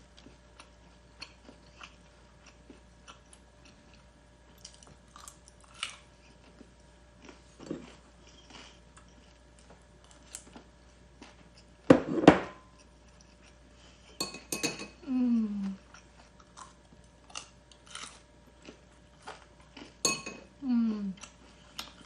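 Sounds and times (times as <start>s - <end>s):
cutlery clinking on dishes: 14.2s - 15.0s, 20.0s - 20.4s.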